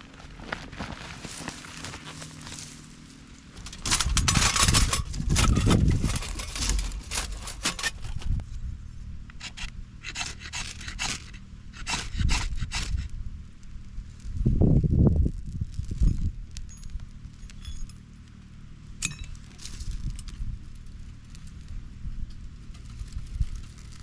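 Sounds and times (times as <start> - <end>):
scraping and rubbing strokes: 0.8 - 8.4, 9.4 - 13.1.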